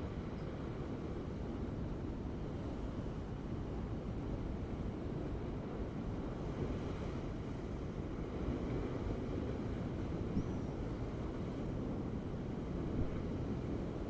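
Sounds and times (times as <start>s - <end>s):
ocean waves rumbling: 0.0s - 14.0s.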